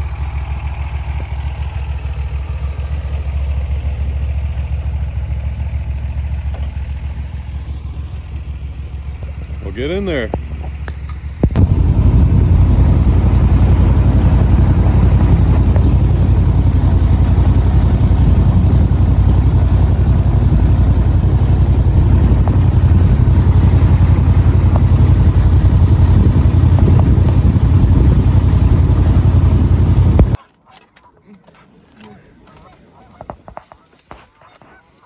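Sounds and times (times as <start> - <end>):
boat motor rumbling: 0.0 - 30.4.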